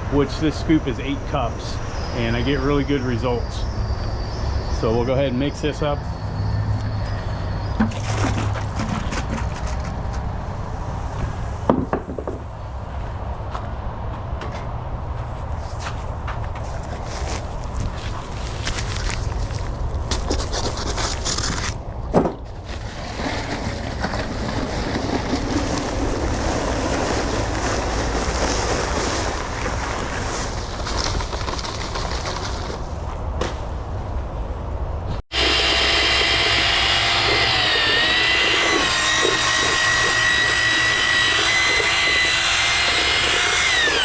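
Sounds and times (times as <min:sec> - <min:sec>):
rough rustling noise: 0:15.0 - 0:34.6
drill mixing concrete: 0:35.3 - 0:44.0.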